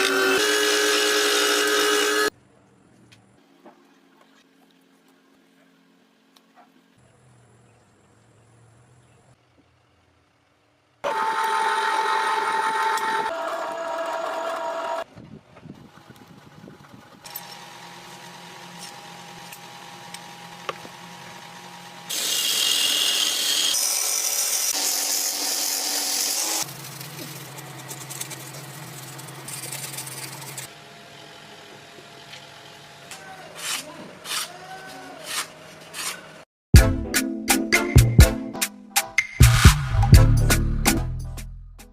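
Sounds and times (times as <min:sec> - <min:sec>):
power tools running: 0:00.0 - 0:02.3, 0:11.0 - 0:15.1, 0:15.9 - 0:33.3.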